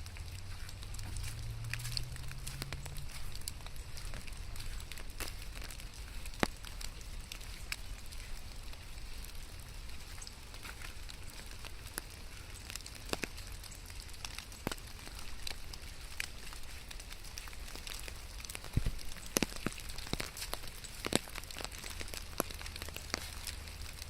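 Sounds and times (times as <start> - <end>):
rain falling: 0.0 - 24.0
raindrops ticking close by: 0.0 - 24.0.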